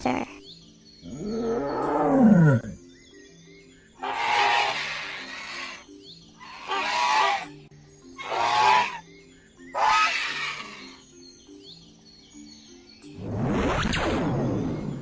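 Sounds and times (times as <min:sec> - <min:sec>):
simple background melody: 0:00.0 - 0:15.0
screeching creature calls: 0:04.0 - 0:05.8, 0:06.4 - 0:07.5, 0:08.2 - 0:09.0, 0:09.8 - 0:11.0.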